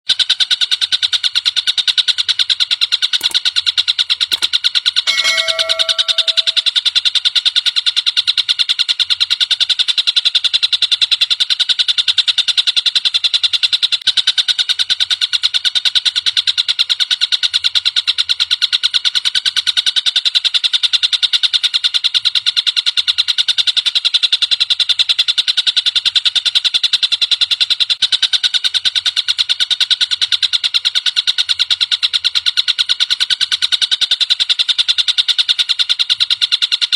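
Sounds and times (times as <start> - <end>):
bird rattling trill: 5.1 - 6.7
low whistle-like note: 5.1 - 6.7.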